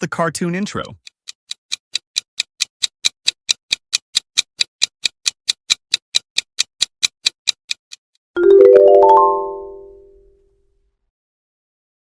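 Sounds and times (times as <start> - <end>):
clock ticking quickly: 0.0 - 8.1
rising mallet chime: 8.4 - 10.2.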